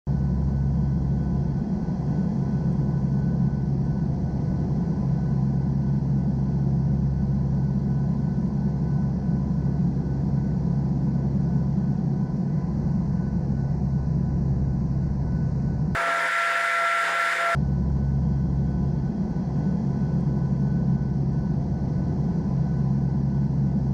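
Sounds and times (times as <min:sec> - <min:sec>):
aircraft engines droning: 0:16.0 - 0:17.6
thin steady tones: 0:16.0 - 0:17.6.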